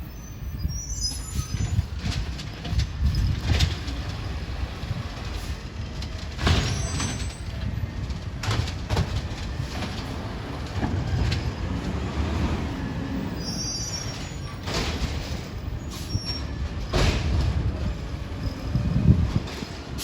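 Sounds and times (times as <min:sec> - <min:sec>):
high metallic squeal: 0:00.0 - 0:01.9, 0:13.1 - 0:16.6
garbage truck engine rumbling: 0:00.0 - 0:20.0.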